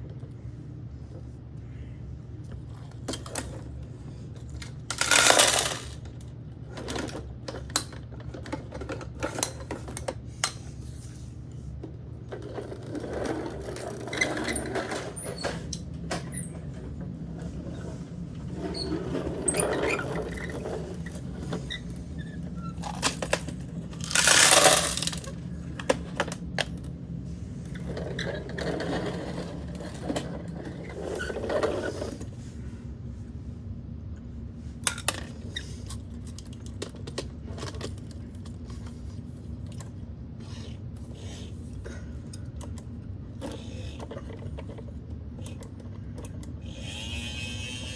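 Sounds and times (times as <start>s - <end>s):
steady low hum: 0.0s - 47.9s
plastic toy parts clattering: 4.6s - 6.2s, 22.8s - 26.8s, 34.9s - 39.0s.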